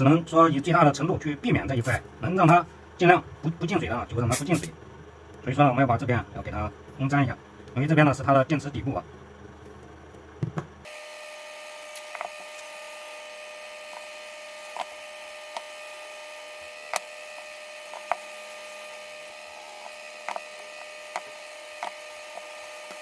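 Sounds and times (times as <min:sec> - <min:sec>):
hot air gun fan hum: 0:10.2 - 0:23.0.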